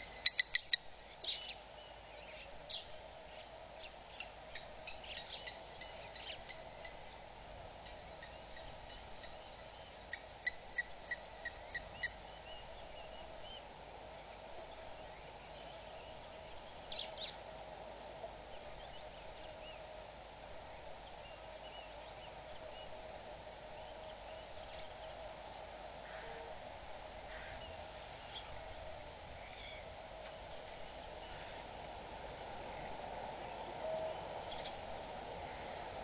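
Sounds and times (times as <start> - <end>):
wild birds calling: 0.0 - 13.6.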